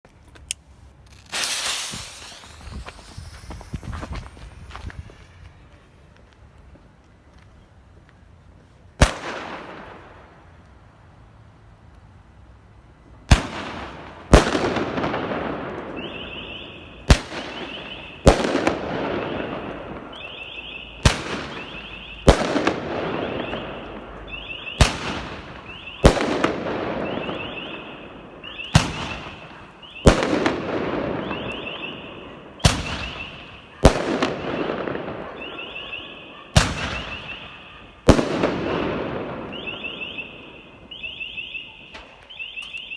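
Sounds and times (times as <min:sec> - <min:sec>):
fireworks bangs with crackle: 0:01.1 - 0:06.1, 0:09.0 - 0:10.3, 0:13.3 - 0:42.8
warbling car alarm: 0:20.2 - 0:21.0.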